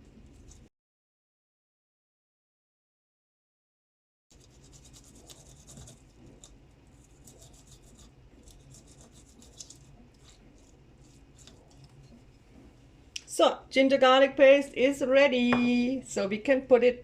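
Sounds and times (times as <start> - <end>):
scraping ginger and garlic: 4.3 - 12.4.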